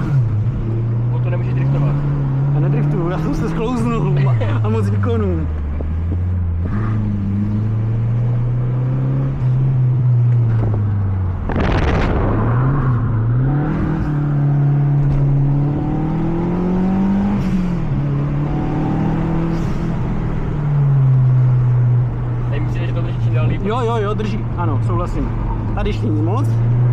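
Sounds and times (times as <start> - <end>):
car engine accelerating: 0.0 - 26.9
short loud rushing noise: 11.4 - 13.3.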